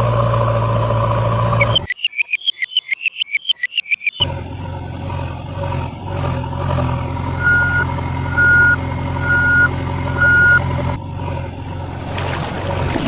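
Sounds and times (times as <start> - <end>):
engine hum: 0.0 - 1.9, 4.2 - 13.0
vehicle reversing alarm beeping: 1.4 - 4.4, 6.9 - 11.0.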